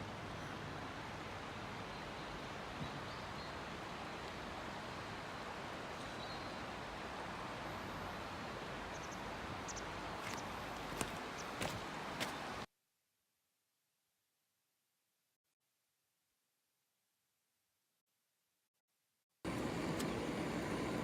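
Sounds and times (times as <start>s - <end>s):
river water rushing: 0.0s - 12.7s
faint bird chirps: 8.9s - 10.5s.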